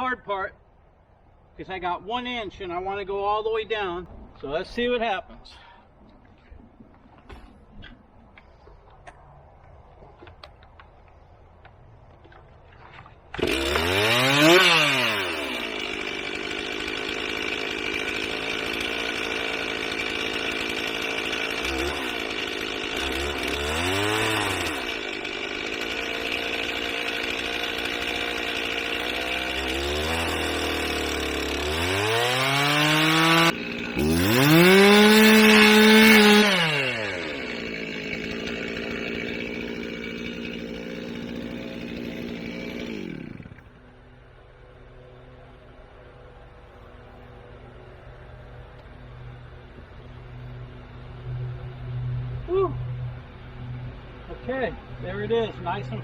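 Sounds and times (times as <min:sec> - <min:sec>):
chainsaw cutting log: 0:12.2 - 0:44.5.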